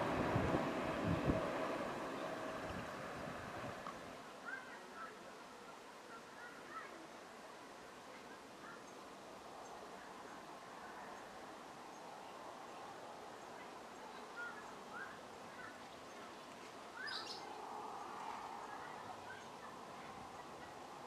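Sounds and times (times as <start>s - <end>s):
steady low hiss: 0.0s - 21.0s
birds chirping: 13.9s - 20.9s.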